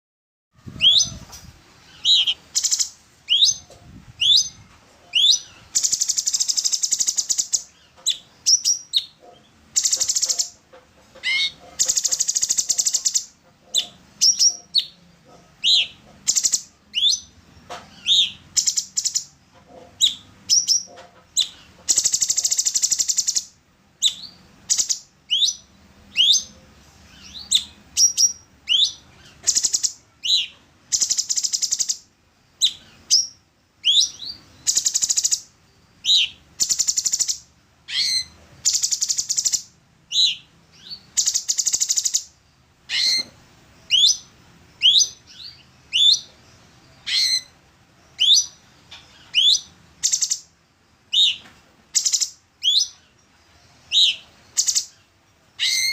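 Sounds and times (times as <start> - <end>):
bird buzzy chattering: 5.1 - 23.5.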